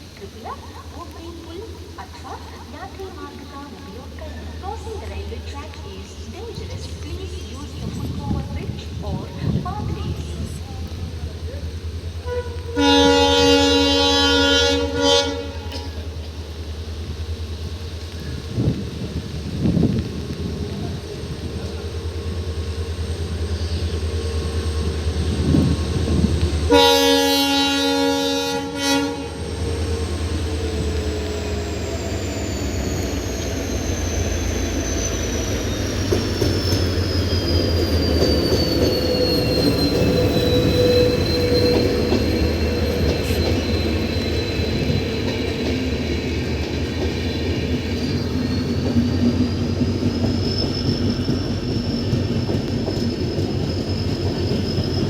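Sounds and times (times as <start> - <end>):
train passing rumble: 0.0 - 55.0
locomotive horn blast: 12.2 - 16.2, 25.4 - 29.8
high wheel squeal: 29.6 - 55.0.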